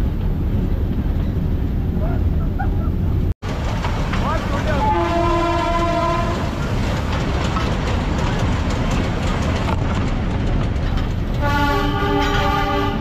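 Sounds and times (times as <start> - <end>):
train wheels rattling on rails: 3.4 - 13.0
train horn chord: 4.8 - 6.4, 11.4 - 13.0.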